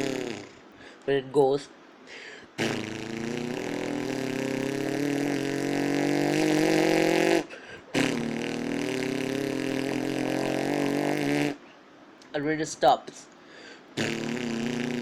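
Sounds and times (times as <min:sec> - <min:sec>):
person imitating engine with mouth: 0:00.0 - 0:00.7, 0:02.6 - 0:11.7, 0:14.0 - 0:15.0.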